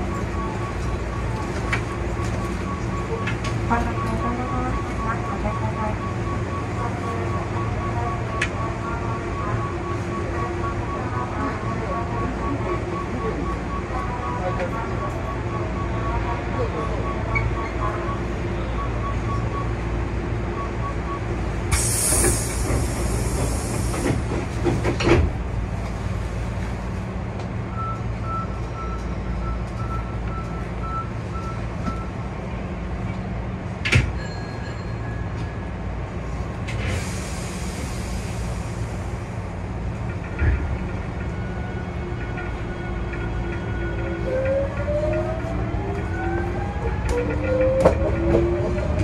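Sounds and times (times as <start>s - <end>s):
train running low rumble: 0.0s - 49.0s
hiss: 21.7s - 24.3s, 36.8s - 39.0s.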